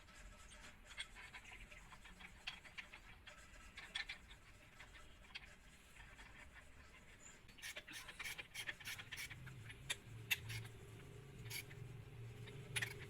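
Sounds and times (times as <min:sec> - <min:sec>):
faint low hum: 0:09.3 - 0:13.0.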